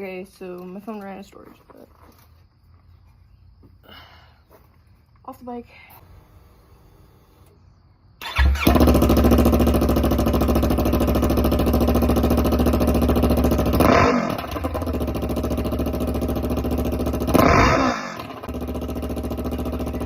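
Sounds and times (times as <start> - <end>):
motorcycle engine idling and revving: 8.2 - 20.0.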